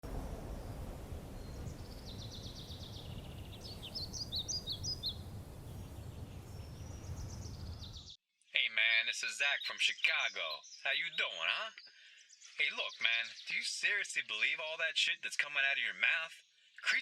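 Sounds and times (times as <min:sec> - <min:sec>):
steady low rumble: 0:00.0 - 0:08.0
small birds chirping: 0:00.1 - 0:08.2, 0:09.2 - 0:14.6.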